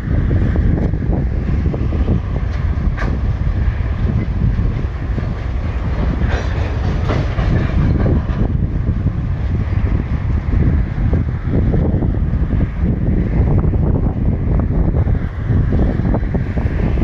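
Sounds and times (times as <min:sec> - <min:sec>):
train rumble: 0:00.0 - 0:17.0
train wagons clanking: 0:01.9 - 0:10.3
train wheels clacking over rail joints: 0:02.3 - 0:10.2.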